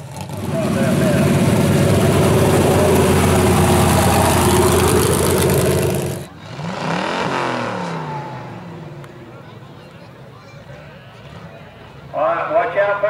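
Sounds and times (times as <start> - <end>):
engine revving: 0.0 - 9.1
offroad vehicle engine running: 0.0 - 9.8.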